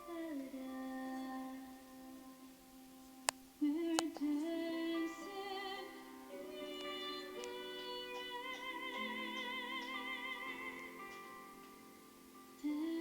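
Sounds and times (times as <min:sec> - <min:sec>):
woman singing long notes: 0:03.6 - 0:11.6, 0:12.6 - 0:13.0.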